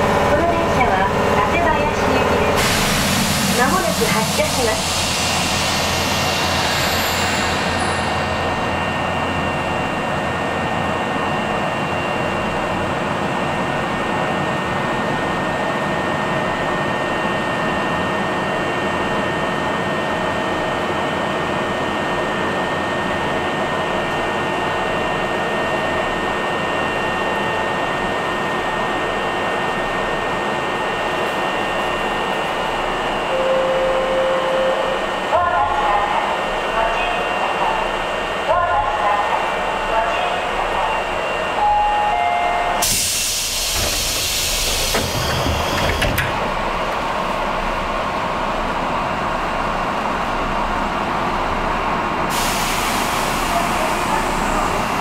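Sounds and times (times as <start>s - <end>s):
train air conditioning whirring hum: 22.1s - 55.0s.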